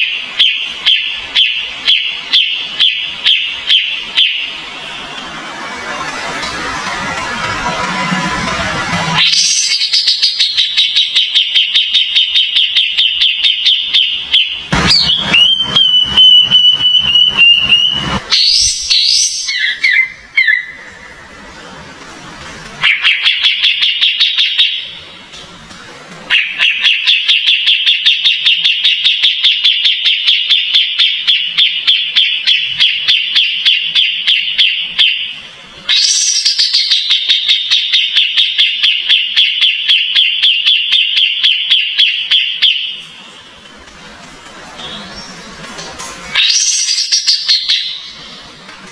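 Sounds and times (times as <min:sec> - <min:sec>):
bird steady whistle: 0:09.2 - 0:20.9, 0:35.9 - 0:43.0
songbird chirping: 0:09.2 - 0:21.2.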